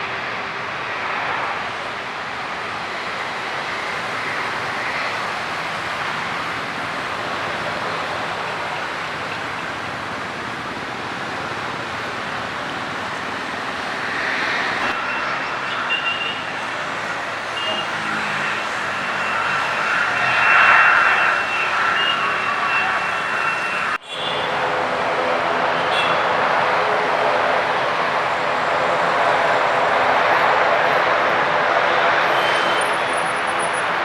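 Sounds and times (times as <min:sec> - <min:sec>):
high steady whine: 0:00.0 - 0:25.8
jet engines rushing: 0:00.0 - 0:34.0.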